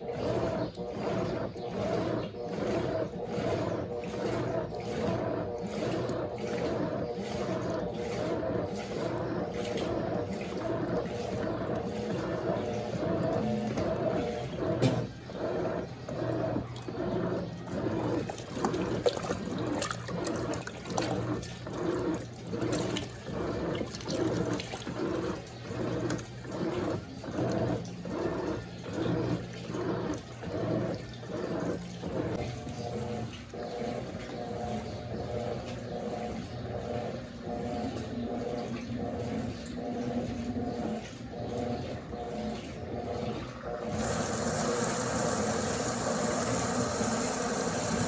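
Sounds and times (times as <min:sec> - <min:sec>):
water swishing: 0:00.0 - 0:33.8
washing machine motor hum: 0:00.0 - 0:48.0.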